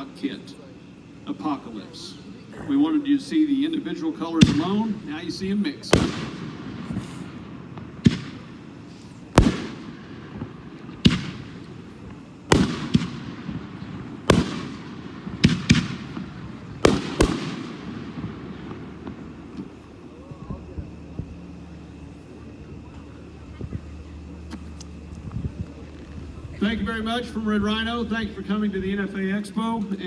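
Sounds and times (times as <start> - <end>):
firework shells launching and bursting: 5.9 - 19.9.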